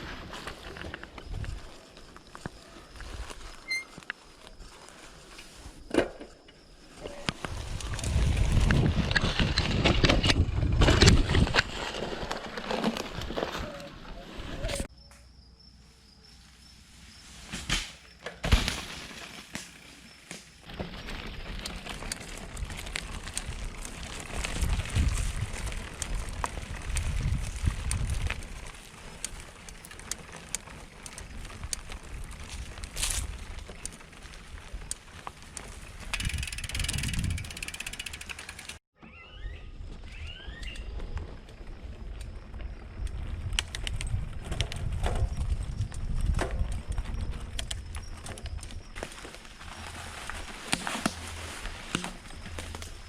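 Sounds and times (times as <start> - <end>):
tires rolling on dirt: 0.0 - 14.9, 17.1 - 38.8, 39.7 - 53.0
bike knocks and rattles: 5.8 - 7.2, 7.8 - 13.7, 35.2 - 38.8, 43.4 - 53.0
tyres rumbling on trail: 6.6 - 14.9, 18.5 - 38.8, 39.9 - 53.0
bike hub ratchet buzzing: 36.1 - 38.8.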